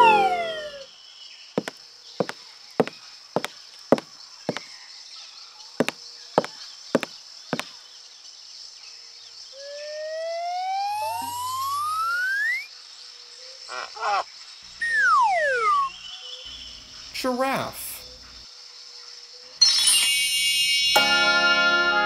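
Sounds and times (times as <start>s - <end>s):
whistle gliding down in pitch: 0.0s - 0.9s, 9.6s - 12.7s, 14.8s - 16.0s
whistle gliding up in pitch: 0.0s - 0.9s, 9.6s - 12.7s.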